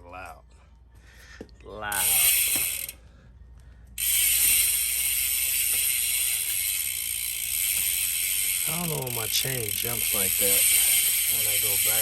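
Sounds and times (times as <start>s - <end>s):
bicycle freehub buzzing: 1.9s - 3.0s, 4.0s - 12.0s.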